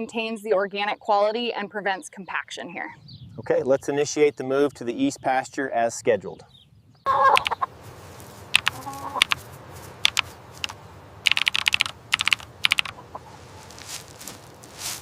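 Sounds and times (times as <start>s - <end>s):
short clucking call: 7.1s - 7.7s, 8.5s - 9.4s
sharp clicks and taps: 7.3s - 7.6s, 8.6s - 9.4s, 10.0s - 13.0s.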